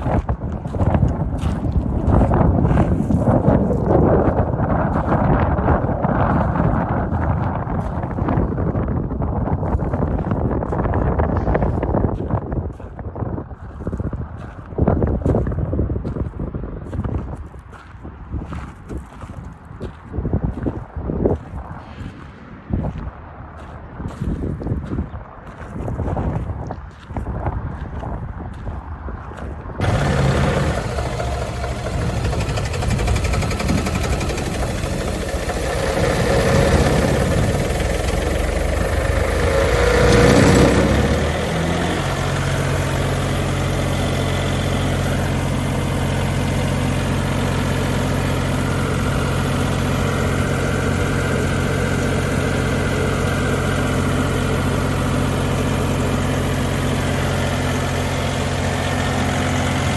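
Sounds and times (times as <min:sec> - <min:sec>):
diesel compressor engine idling: 0:29.8 - 0:59.9.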